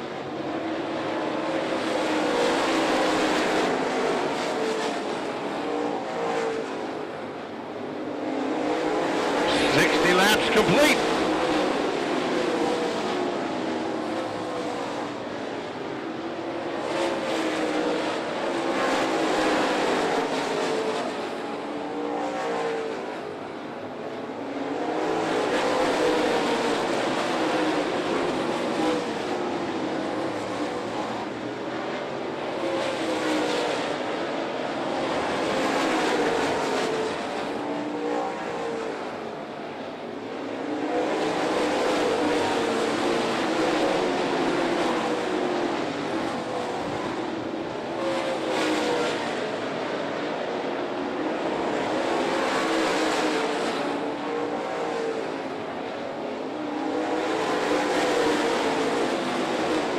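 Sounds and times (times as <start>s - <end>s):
race car engines passing: 8.2s - 13.2s, 40.6s - 59.9s.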